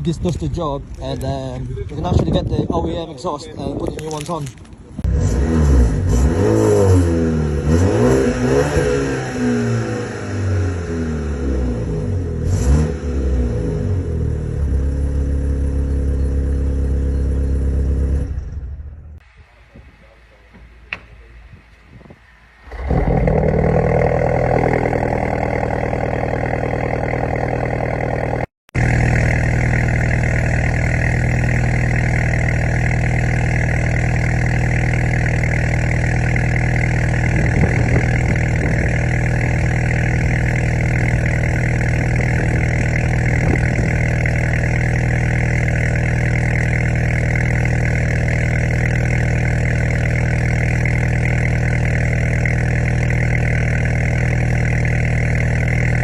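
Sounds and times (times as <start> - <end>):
car engine idling: 13.8 - 56.0.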